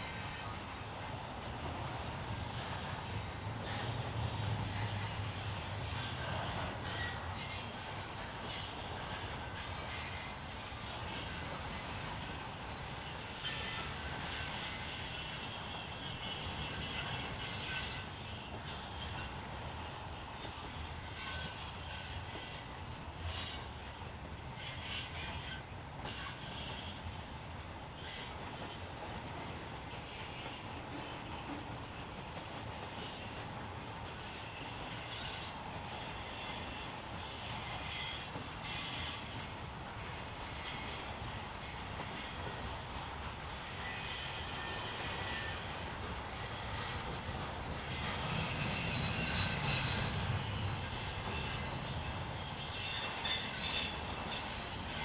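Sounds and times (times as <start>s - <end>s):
train wheels rumbling: 0.0s - 55.0s
wheels squealing against rail: 0.0s - 55.0s.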